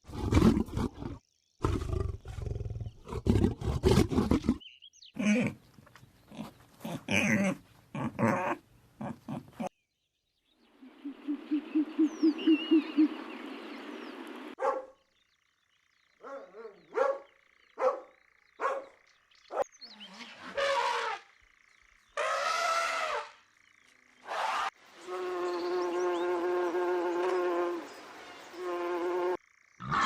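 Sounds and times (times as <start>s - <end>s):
low pulsed animal calls: 10.8s - 13.3s
dog-like barks: 14.6s - 15.0s, 16.2s - 19.7s.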